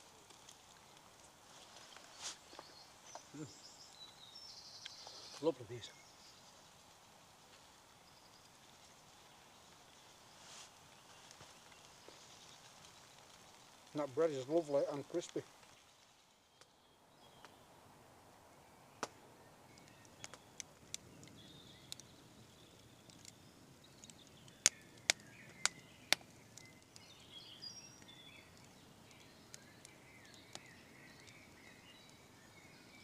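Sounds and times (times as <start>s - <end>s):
faint birdsong: 0.0s - 33.0s
sharp clicks and snaps: 19.8s - 22.1s, 22.7s - 23.4s, 24.0s - 27.1s.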